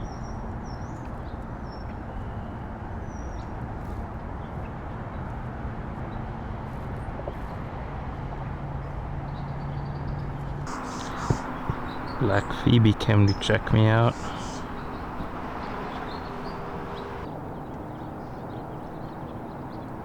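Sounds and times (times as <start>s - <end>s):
high bird chirps: 10.7s - 17.3s
distant traffic rumble: 10.7s - 20.0s.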